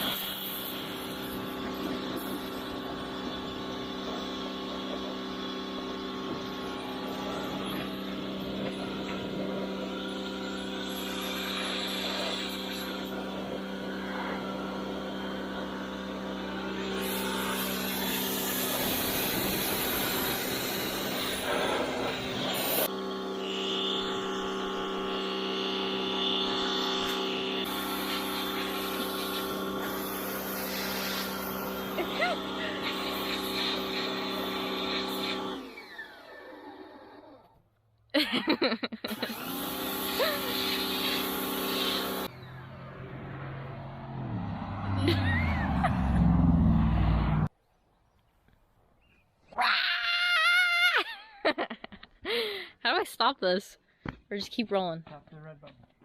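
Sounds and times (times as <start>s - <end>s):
hiss of spray: 0.0s - 1.5s, 17.0s - 22.9s, 27.0s - 35.6s, 39.2s - 42.3s
pressure washer droning: 0.0s - 37.4s, 38.2s - 43.5s, 44.2s - 47.5s.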